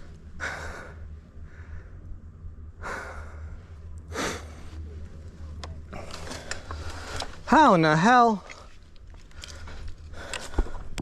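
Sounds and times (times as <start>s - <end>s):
person breathing heavily: 0.0s - 5.0s, 8.6s - 11.0s
steady low rumble: 0.0s - 11.0s.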